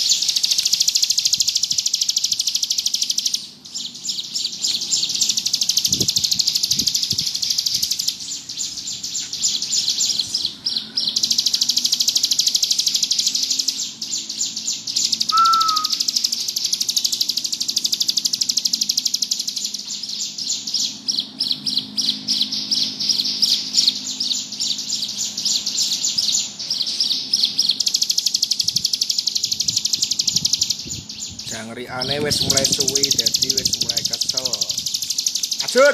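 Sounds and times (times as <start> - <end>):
bird rapid high-pitched trill: 0.0 - 35.9
low clear bird whistle: 13.0 - 17.2.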